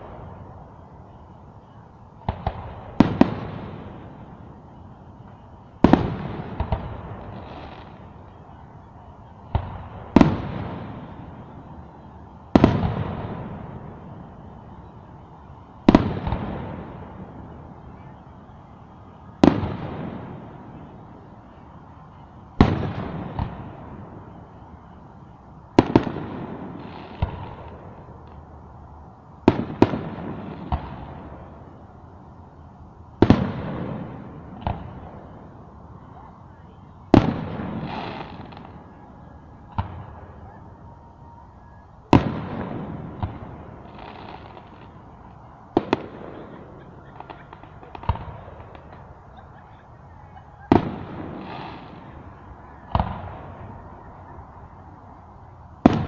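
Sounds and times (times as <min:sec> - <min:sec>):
small firework pops: 0:02.2 - 0:03.5, 0:25.8 - 0:28.4, 0:39.7 - 0:40.2, 0:45.7 - 0:49.4, 0:52.9 - 0:53.4, 0:55.8 - 0:56.0.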